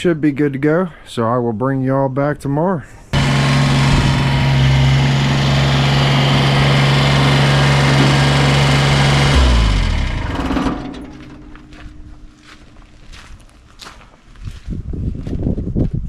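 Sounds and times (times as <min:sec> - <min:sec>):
motor humming and winding down: 0:03.2 - 0:12.2.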